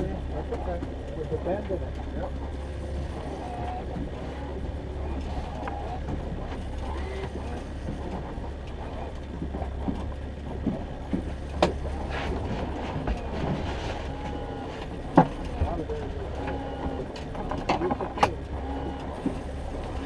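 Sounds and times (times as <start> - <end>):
boat engine humming: 0.0 - 20.0
sharp clicks and knocks: 5.2 - 13.6, 14.8 - 20.0.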